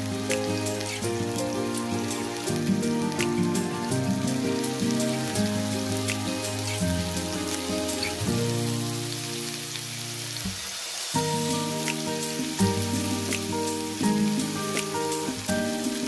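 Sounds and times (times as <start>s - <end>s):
music of sustained chords: 0.0s - 10.4s
rain hissing: 0.0s - 16.0s.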